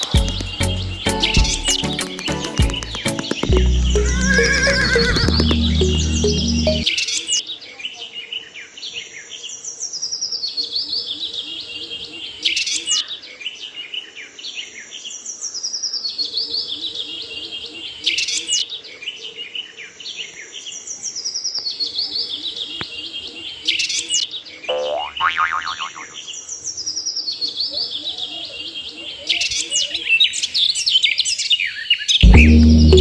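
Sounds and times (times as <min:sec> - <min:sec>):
bird chirps and trills: 0:00.0 - 0:07.2, 0:24.7 - 0:26.4.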